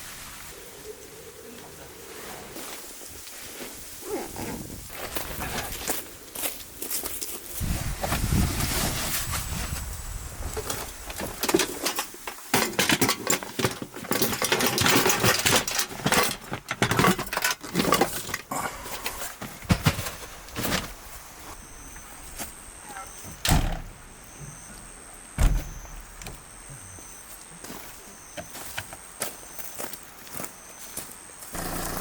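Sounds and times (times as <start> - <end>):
gear knocking and clattering: 11.1 - 18.5.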